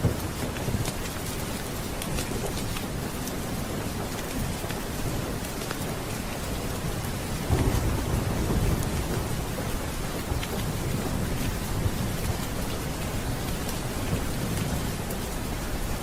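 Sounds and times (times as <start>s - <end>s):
steady rain: 0.0s - 16.0s
thunder rumble: 7.2s - 15.1s.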